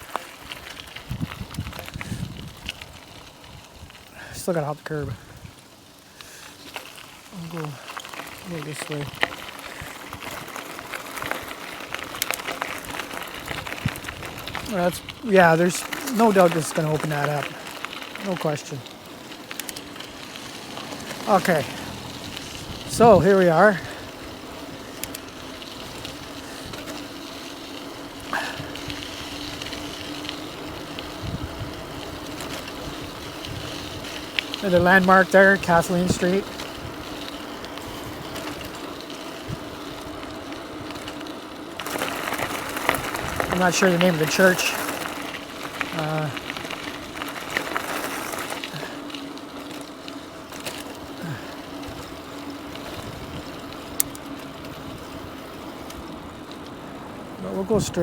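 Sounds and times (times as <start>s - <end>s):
wind on microphone: 1.0s - 4.0s, 21.6s - 23.2s, 30.6s - 34.2s, 52.8s - 53.9s
tyre noise: 6.2s - 56.6s
electric motor hum: 19.0s - 34.8s
low motor hum: 19.1s - 23.2s.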